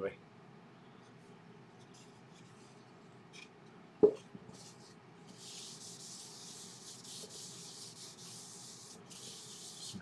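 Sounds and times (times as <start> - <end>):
rubbing against wooden bowl: 4.5 - 10.0.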